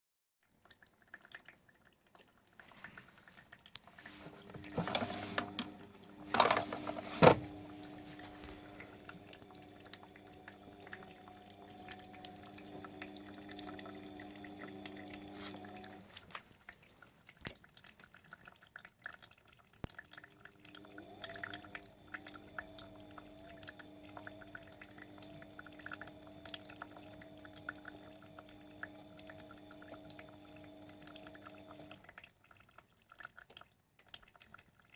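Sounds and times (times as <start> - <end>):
water splashing and dripping: 0.4 - 34.9
washing machine motor hum: 4.0 - 16.3, 20.0 - 32.2.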